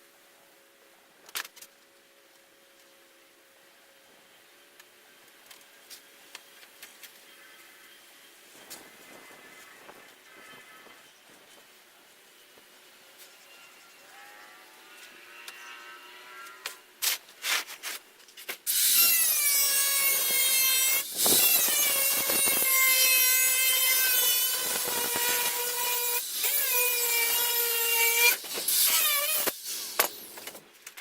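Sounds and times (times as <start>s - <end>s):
power cutting tool whining: 18.7s - 30.6s.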